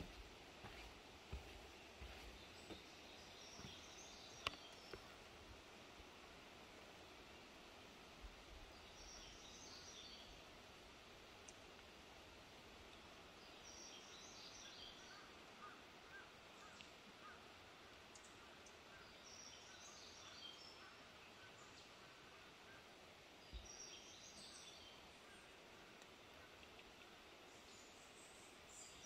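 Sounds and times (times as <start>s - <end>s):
songbird singing: 0.0s - 5.4s, 8.3s - 10.6s, 12.9s - 29.0s.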